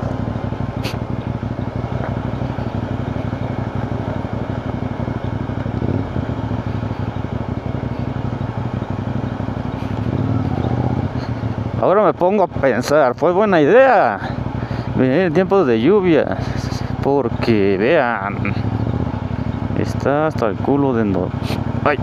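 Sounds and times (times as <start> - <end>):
motorcycle engine at low revs: 0.0 - 22.0.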